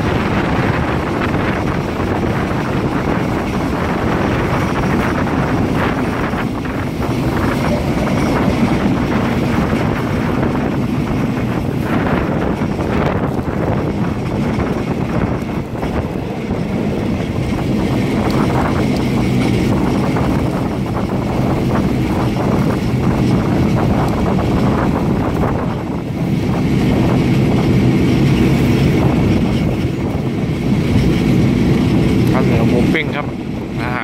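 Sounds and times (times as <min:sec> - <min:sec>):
rushing air: 0:00.0 - 0:33.8
train wheels rumbling on rails: 0:00.0 - 0:34.0.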